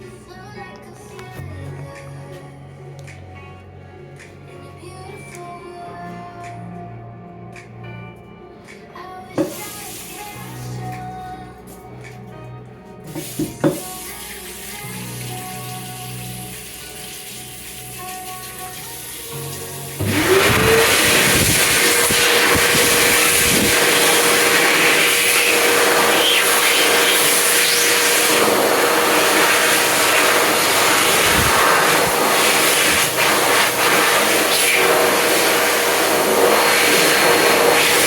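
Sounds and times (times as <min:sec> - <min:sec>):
hand dryer motor whine: 0:18.8 - 0:38.0.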